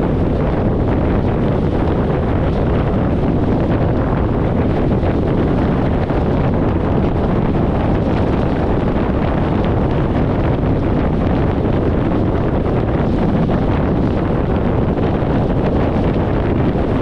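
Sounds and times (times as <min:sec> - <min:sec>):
car road noise at highway speed: 0:00.0 - 0:17.0
wind buffeting microphone: 0:00.0 - 0:17.0.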